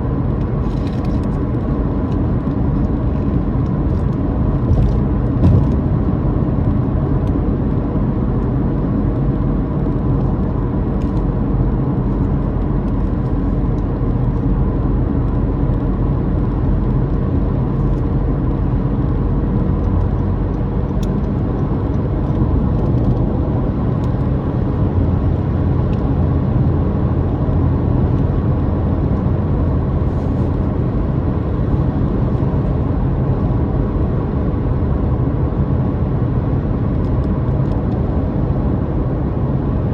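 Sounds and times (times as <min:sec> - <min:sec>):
road and tyre noise: 0:00.0 - 0:39.9.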